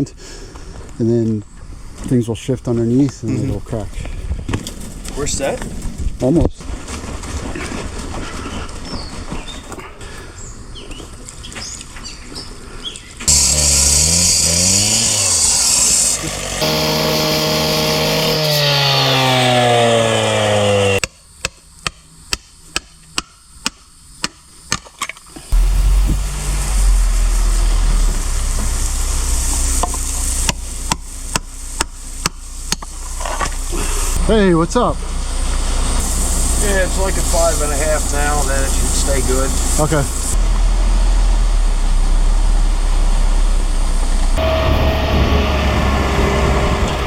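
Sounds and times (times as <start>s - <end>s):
engine revving: 13.3s - 21.0s, 25.5s - 31.3s, 33.7s - 47.0s
strong hiss: 25.6s - 40.4s.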